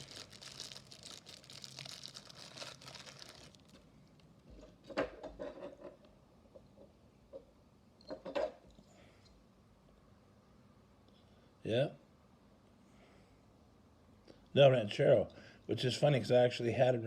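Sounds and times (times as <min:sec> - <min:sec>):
wrapping crinkling: 0:00.0 - 0:04.4.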